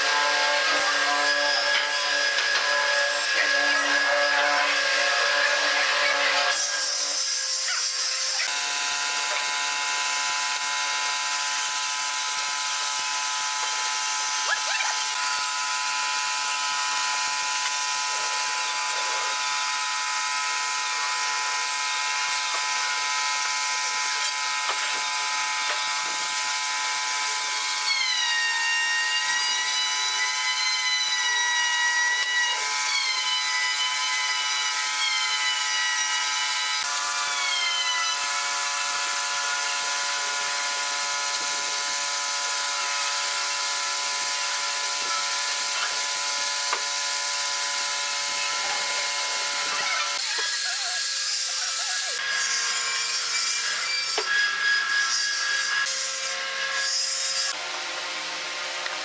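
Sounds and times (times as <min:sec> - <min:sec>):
electric sander running: 0:00.0 - 0:54.6, 0:55.7 - 0:59.0.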